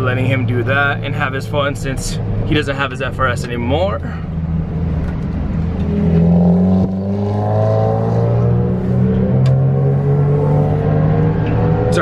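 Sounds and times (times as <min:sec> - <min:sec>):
vehicle engine accelerating: 0:04.3 - 0:12.0.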